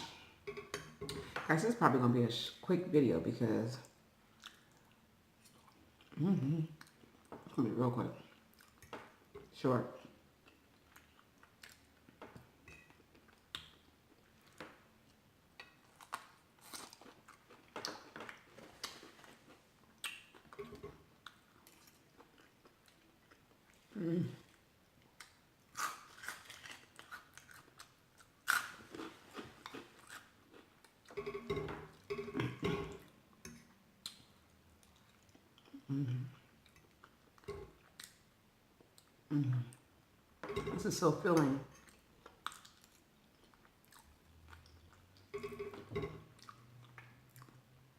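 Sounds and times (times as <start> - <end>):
person chewing food: 4.3 - 7.6, 8.2 - 9.4, 10.0 - 39.9, 41.7 - 47.9
food crunching: 24.5 - 35.9, 40.6 - 47.6.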